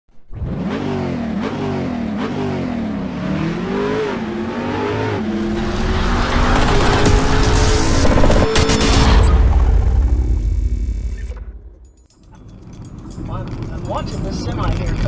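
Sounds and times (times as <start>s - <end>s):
vehicle engine revving: 0.1s - 11.9s.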